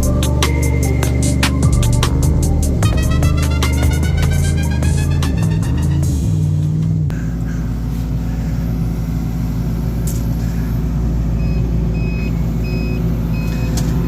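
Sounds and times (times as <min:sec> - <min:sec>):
backup alarm beeping: 0:00.0 - 0:06.1, 0:11.4 - 0:13.9
diesel engine running: 0:00.0 - 0:14.0.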